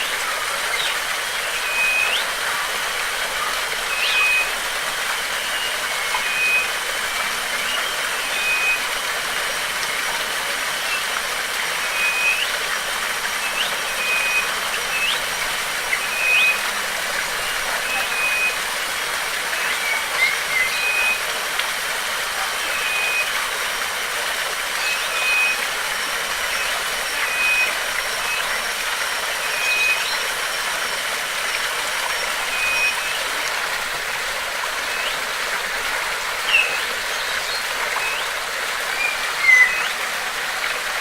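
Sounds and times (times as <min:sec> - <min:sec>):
thin high tone: 0:00.0 - 0:21.4, 0:22.4 - 0:40.6
waterfall rushing: 0:00.0 - 0:41.0
bird whistling: 0:00.5 - 0:18.7, 0:19.4 - 0:21.4, 0:22.6 - 0:23.4, 0:24.8 - 0:33.5, 0:34.7 - 0:35.3, 0:36.4 - 0:40.3.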